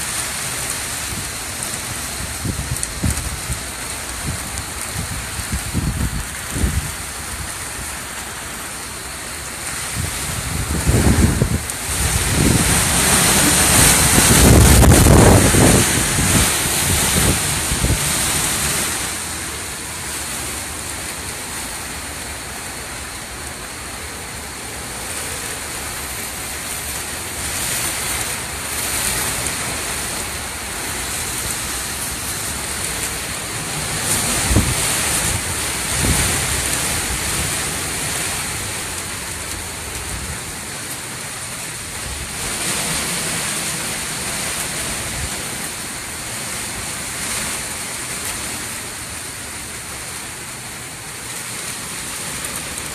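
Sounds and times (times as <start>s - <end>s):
hurricane winds blowing hard: 0.0s - 52.9s
wind gusts buffeting microphone: 0.8s - 7.8s, 9.7s - 19.6s, 25.1s - 40.5s.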